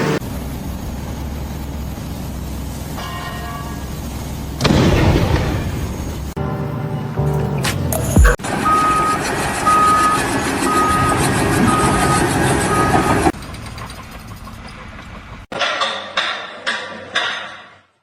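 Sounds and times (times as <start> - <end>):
loud engine noise: 0.0 - 13.4
vehicle reversing alarm beeping: 6.4 - 13.3
clatter of sharp knocks: 15.5 - 17.8.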